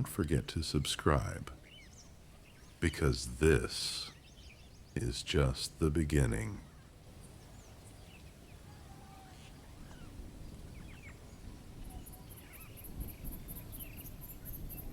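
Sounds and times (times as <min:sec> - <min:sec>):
faint bird chirps and whistles: 0:01.6 - 0:02.8, 0:04.0 - 0:05.0, 0:06.6 - 0:14.9.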